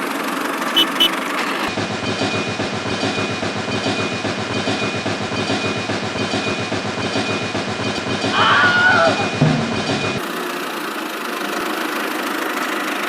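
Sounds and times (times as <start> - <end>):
small engine chugging: 0.0 - 13.0.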